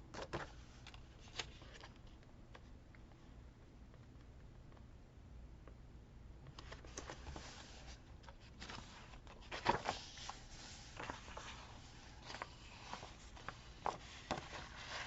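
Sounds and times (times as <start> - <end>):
paper rustling with taps and clicks: 6.5 - 15.0.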